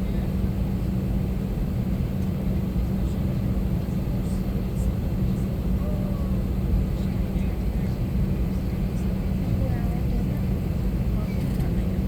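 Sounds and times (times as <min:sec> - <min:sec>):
airliner cabin rumble and hum: 0:00.0 - 0:12.0.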